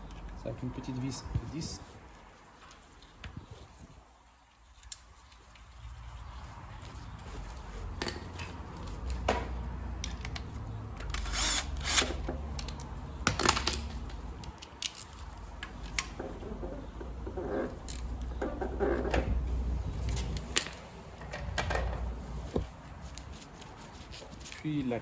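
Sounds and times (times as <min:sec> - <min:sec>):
power tool motor whirring: 0:11.1 - 0:12.2.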